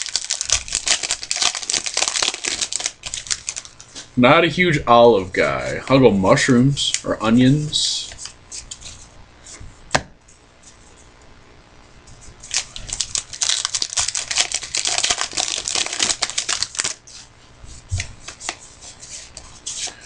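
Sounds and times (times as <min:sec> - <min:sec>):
wrapper tearing and crinkling: 0:00.0 - 0:03.9, 0:12.4 - 0:17.0.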